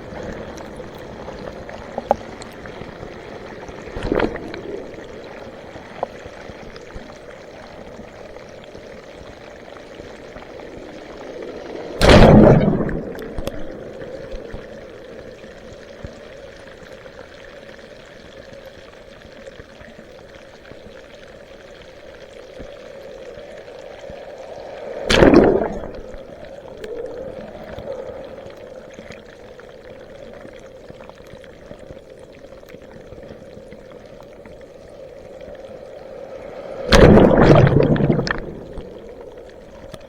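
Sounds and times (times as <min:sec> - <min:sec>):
loud water splash: 0:03.9 - 0:04.6, 0:11.9 - 0:14.7, 0:24.6 - 0:26.5, 0:36.0 - 0:39.3
water sloshing around kayak: 0:36.8 - 0:40.0.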